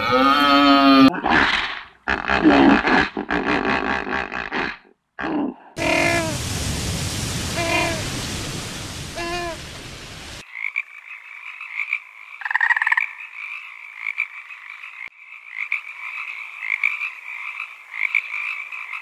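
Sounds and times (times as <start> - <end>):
surf breaking on a beach: 5.8 - 10.4
frogs croaking: 10.4 - 19.0
loud rattling frog croak: 10.4 - 19.0.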